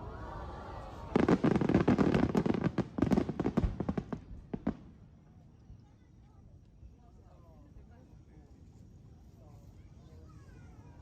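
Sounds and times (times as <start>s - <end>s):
fireworks crackling: 1.0s - 4.8s.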